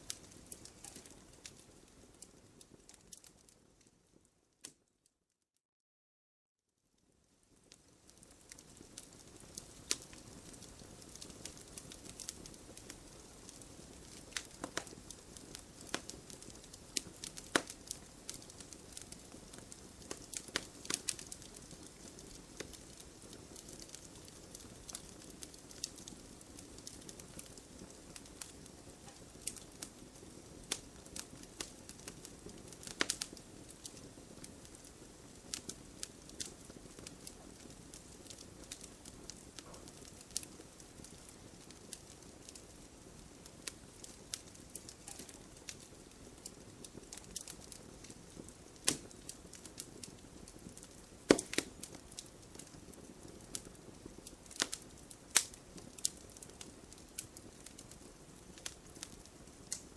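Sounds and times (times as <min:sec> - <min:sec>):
burning wood crackling and popping: 0:00.0 - 0:04.8, 0:07.0 - 0:59.9
flames rustling: 0:00.0 - 0:04.8, 0:07.0 - 0:59.9.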